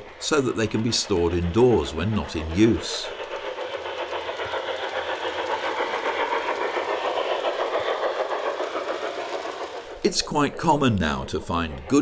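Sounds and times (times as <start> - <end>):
model train rolling clatter: 0.0 - 12.0.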